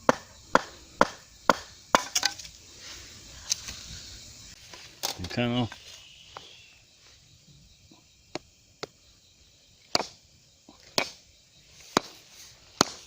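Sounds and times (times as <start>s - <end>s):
blade chopping strikes: 12.8s - 13.0s.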